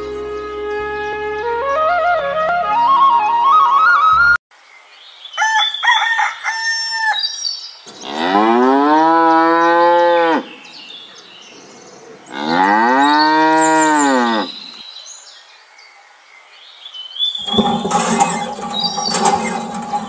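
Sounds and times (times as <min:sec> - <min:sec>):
cow mooing: 0:08.0 - 0:10.5, 0:12.3 - 0:14.6.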